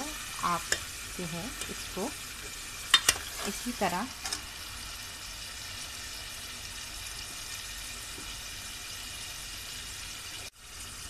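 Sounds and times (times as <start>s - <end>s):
meat sizzling in hot fat: 0.0s - 11.0s.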